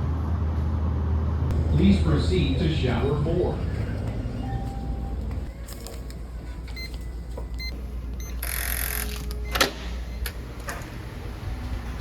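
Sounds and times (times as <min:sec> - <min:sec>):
low building hum: 0:00.0 - 0:12.0
door lock short beeps: 0:07.6 - 0:10.4.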